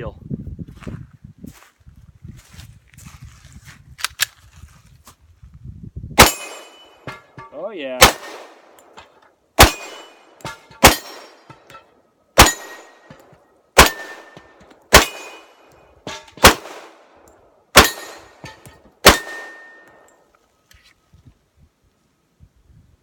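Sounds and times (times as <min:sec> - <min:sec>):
bullet clanging on steel target: 0:06.2 - 0:07.6, 0:08.7 - 0:16.6, 0:17.2 - 0:20.3
pistol shots: 0:06.2 - 0:11.8, 0:12.4 - 0:20.0.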